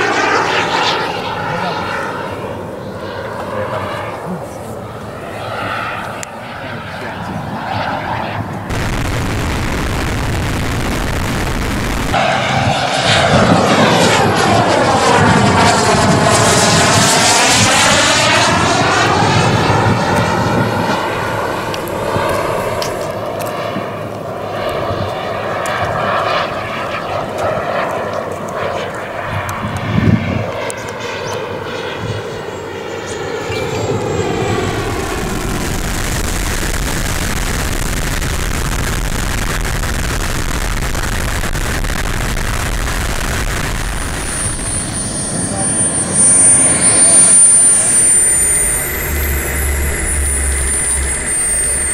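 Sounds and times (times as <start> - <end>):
model jet engine whoosh: 0.0 - 8.8, 9.8 - 40.4, 41.0 - 51.9.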